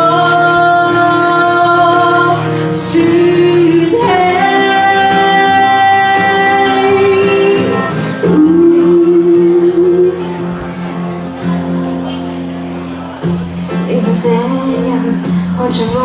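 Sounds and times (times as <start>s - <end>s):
woman singing long notes: 0.0s - 10.4s, 13.7s - 16.0s
instrumental backing: 0.0s - 16.0s.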